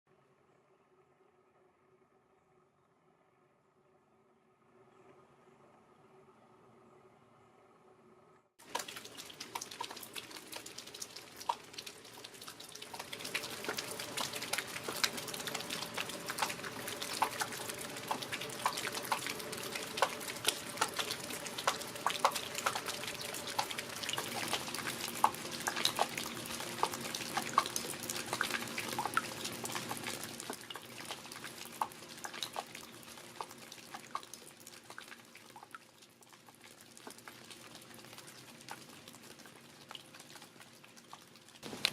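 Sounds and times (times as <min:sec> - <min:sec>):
rain falling: 0:08.6 - 0:35.7, 0:36.5 - 0:41.9
drops pattering and dripping: 0:08.6 - 0:41.9.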